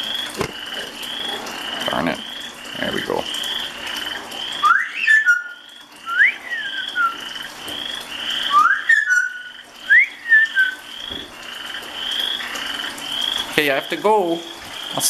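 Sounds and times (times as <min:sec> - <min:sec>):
frogs calling in chorus: 0:00.0 - 0:15.0
parrot wolf whistles: 0:04.6 - 0:07.2, 0:08.5 - 0:10.8.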